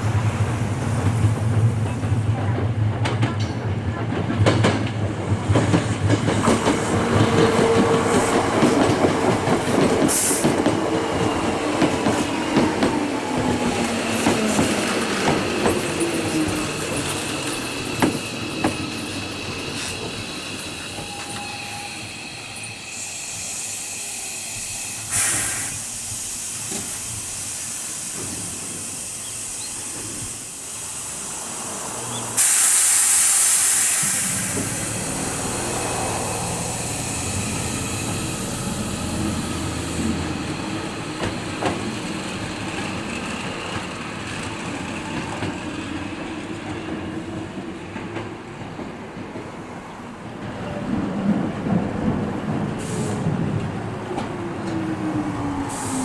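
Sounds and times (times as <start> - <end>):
train rumble: 0.0 - 56.0
steady air hiss: 22.8 - 40.0, 55.6 - 56.0
compressed air blast: 24.8 - 38.6, 55.7 - 56.0
short air puff: 25.1 - 28.2, 32.4 - 35.2.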